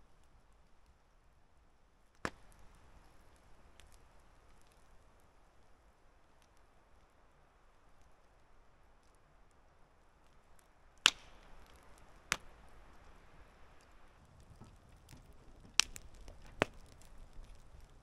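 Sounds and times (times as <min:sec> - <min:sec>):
sharp cracks: 0:11.0 - 0:13.2, 0:13.8 - 0:17.8.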